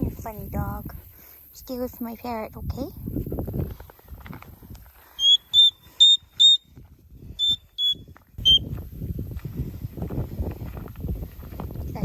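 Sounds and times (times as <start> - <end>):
parrot shrill whistle calls: 5.2 - 6.6, 7.4 - 8.6.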